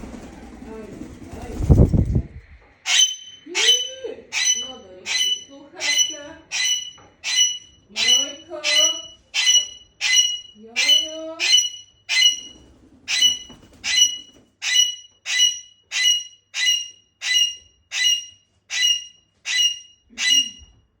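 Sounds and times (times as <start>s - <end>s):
parrot screaming: 2.9s - 20.6s.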